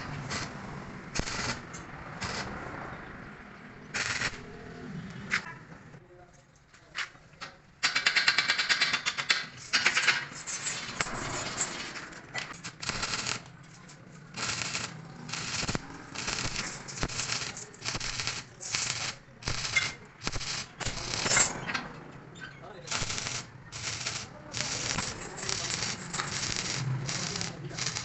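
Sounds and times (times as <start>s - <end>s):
electric arc welding crackling: 0.0s - 2.6s, 3.9s - 4.5s, 12.5s - 13.5s, 14.3s - 21.5s, 22.9s - 28.0s.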